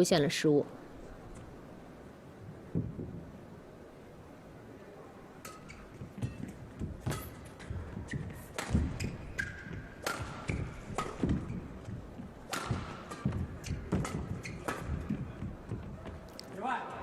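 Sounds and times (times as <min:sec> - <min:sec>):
racket striking shuttlecock: 0:05.4 - 0:15.8
shoes squeaking on court: 0:05.5 - 0:16.6.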